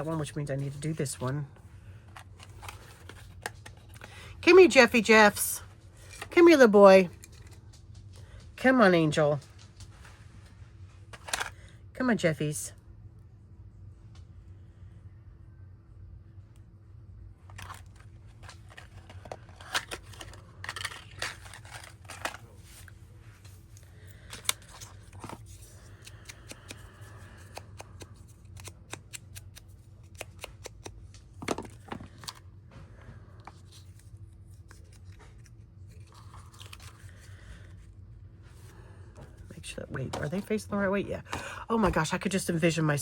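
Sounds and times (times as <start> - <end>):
low steady hum: 0.0 - 43.0
paper rustling: 17.5 - 32.4, 33.5 - 37.6.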